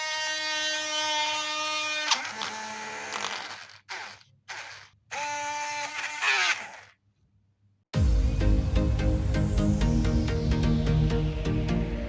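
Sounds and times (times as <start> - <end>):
small motor drill whining: 0.0 - 7.0.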